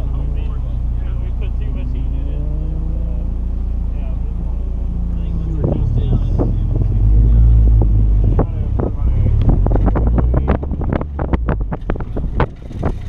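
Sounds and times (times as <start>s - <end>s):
distant car engine: 0.0s - 13.0s
wind on microphone: 5.6s - 13.0s.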